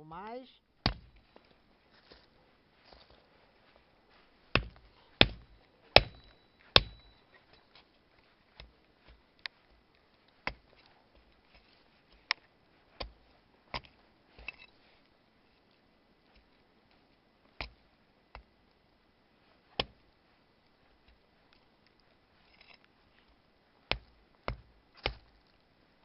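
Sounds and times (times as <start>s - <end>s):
axe chopping wood: 0.8s - 1.2s, 4.6s - 7.1s, 10.5s - 10.7s, 13.0s - 13.9s, 19.8s - 20.0s, 23.9s - 25.4s.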